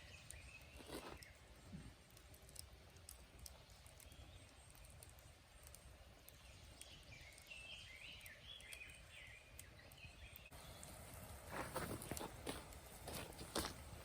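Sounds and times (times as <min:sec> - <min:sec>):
quiet outdoor background noise: 0:00.0 - 0:14.0
bird chirping faintly: 0:03.2 - 0:10.9.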